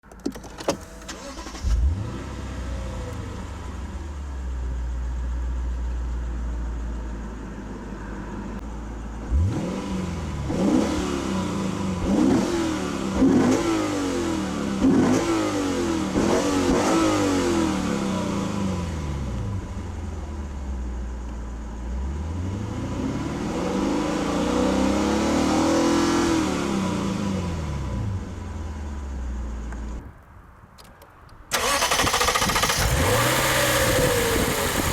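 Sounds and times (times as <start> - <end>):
car engine starting and revving: 0.2 - 5.0, 9.2 - 20.6, 21.9 - 30.0, 31.5 - 34.9.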